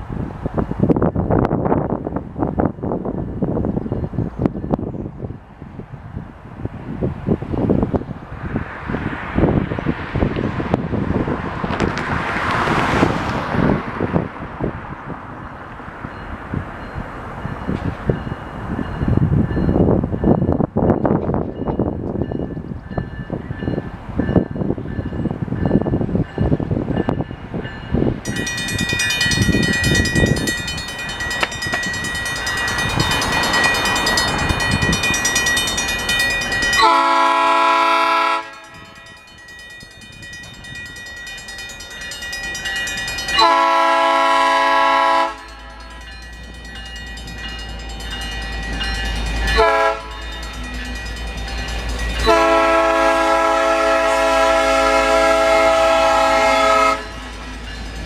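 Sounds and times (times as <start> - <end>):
train engine rumble: 0.0 - 58.0
crossing bell ringing: 16.0 - 58.0
locomotive horn blasts: 36.7 - 39.1, 43.4 - 45.9, 49.5 - 50.3, 52.2 - 57.3.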